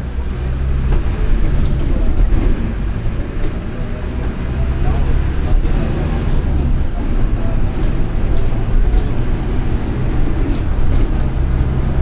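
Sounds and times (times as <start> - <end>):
bus diesel engine rumbling: 0.0 - 12.0.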